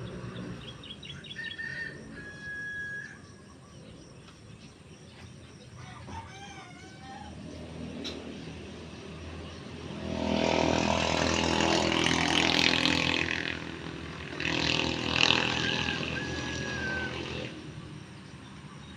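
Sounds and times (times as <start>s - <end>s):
motor engine running: 7.5s - 18.7s.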